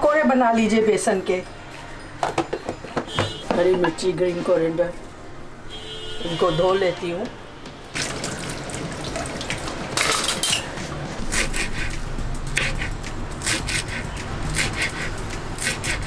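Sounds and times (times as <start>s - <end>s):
kitchen utensils clattering: 8.0s - 16.0s.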